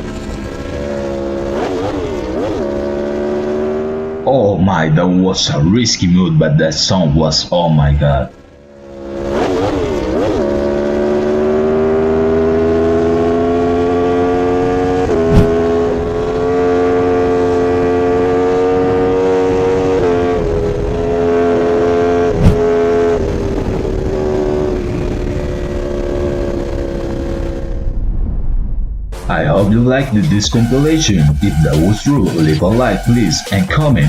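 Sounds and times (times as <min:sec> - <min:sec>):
motorcycle engine at high revs: 0:00.0 - 0:04.3, 0:08.3 - 0:27.7
sharp engine pops: 0:15.3 - 0:15.6.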